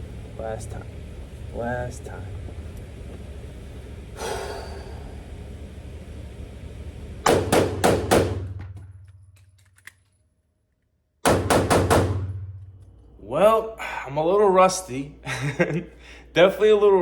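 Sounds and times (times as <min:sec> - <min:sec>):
pistol shots echoing: 0:07.2 - 0:08.7, 0:11.2 - 0:12.6.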